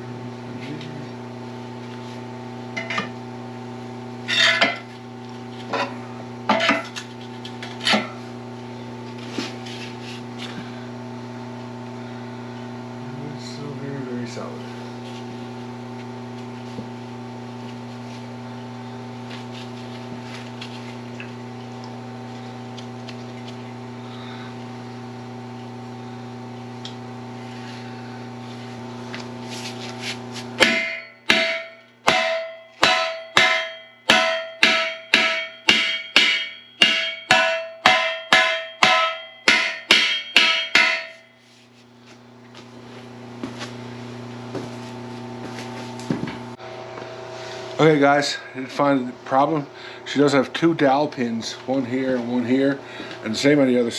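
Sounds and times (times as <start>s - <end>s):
machine hum: 0.0s - 53.9s
hammer blows on steel: 30.6s - 41.4s.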